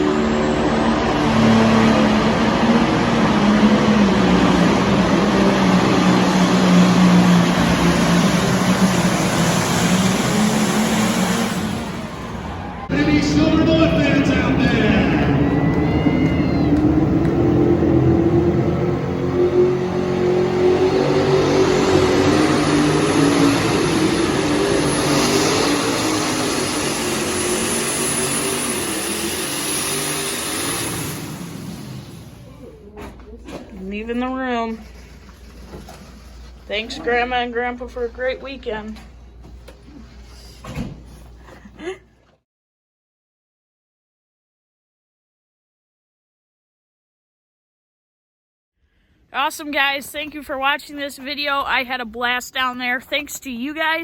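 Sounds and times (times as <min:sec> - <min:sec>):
tractor engine running flat out: 0:00.0 - 0:32.7.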